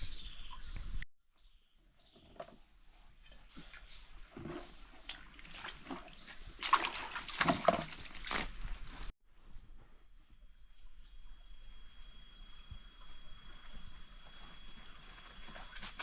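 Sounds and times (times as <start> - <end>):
insect chirring: 3.2 - 16.0
water splashing and sloshing: 3.3 - 9.1, 14.6 - 16.0.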